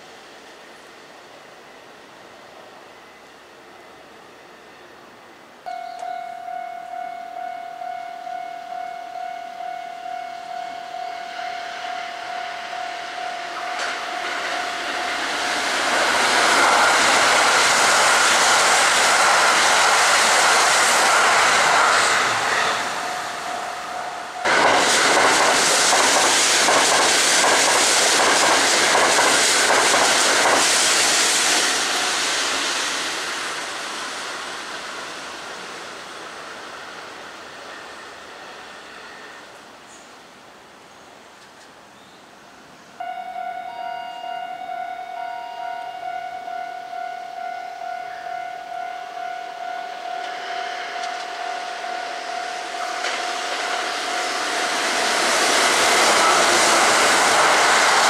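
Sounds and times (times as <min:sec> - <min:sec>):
electric trains passing: 0:00.0 - 0:41.6, 0:42.5 - 0:58.0
high ringing warning tone: 0:05.7 - 0:15.6, 0:22.6 - 0:24.6, 0:43.0 - 0:55.0.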